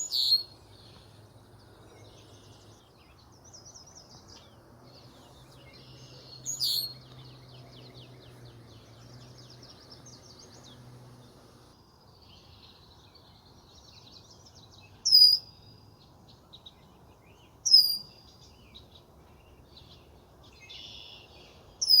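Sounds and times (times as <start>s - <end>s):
songbirds twittering and trilling: 0.0s - 22.0s
loud sharp bird call: 6.4s - 6.9s.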